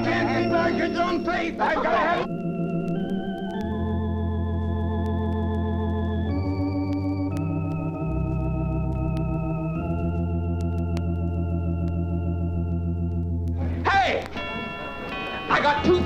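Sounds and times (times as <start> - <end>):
organ playing sustained chords: 0.0 - 16.0
faint clicks: 2.7 - 3.8, 13.1 - 13.6.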